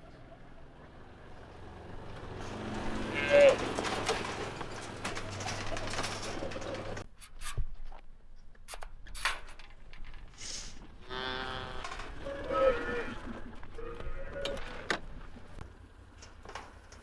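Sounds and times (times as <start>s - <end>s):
engine hum: 0.0s - 7.1s, 10.9s - 17.0s
knocks and clanks: 2.0s - 7.1s
calves bawling: 2.2s - 7.0s, 10.9s - 15.6s.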